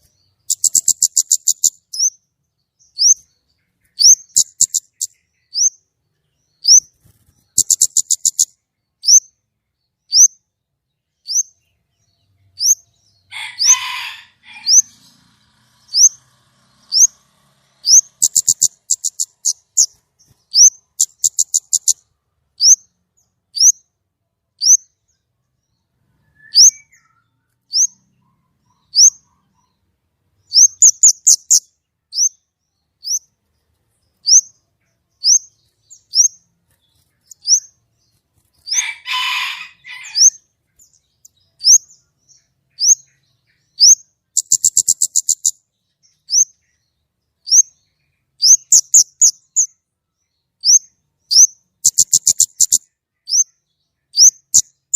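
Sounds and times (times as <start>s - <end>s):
harsh rasping bird call: 13.3s - 19.9s, 38.7s - 40.4s
bird rattling trills: 13.5s - 22.0s.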